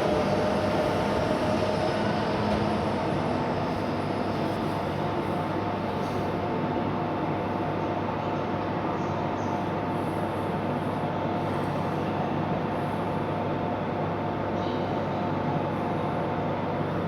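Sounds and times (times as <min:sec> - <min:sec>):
train running noise: 0:00.0 - 0:08.2.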